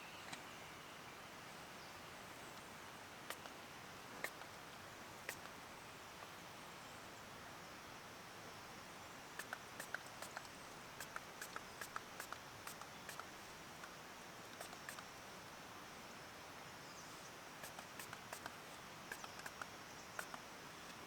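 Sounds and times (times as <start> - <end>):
background hiss: 0.0 - 21.0
light sharp clicks: 3.3 - 3.6, 5.3 - 5.6, 9.4 - 15.1, 17.6 - 21.0.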